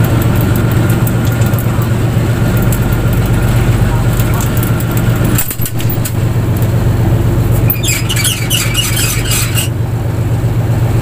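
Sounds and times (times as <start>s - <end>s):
boat engine droning: 0.0s - 11.0s
high-pitched squeaks: 5.4s - 6.5s, 7.6s - 9.8s.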